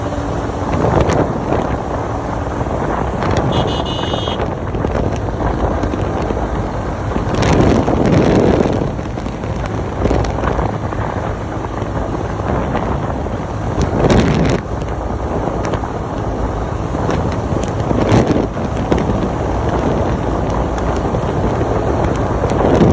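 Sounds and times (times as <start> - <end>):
motorcycle on the road: 0.0 - 22.9
wind buffeting microphone: 0.0 - 22.9
short high beeping: 3.5 - 4.4.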